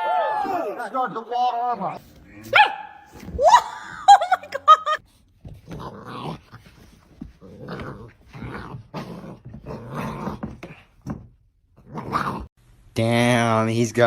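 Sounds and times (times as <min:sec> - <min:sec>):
dog yipping: 0:02.5 - 0:03.6
dog growling: 0:05.6 - 0:10.9, 0:11.8 - 0:12.5.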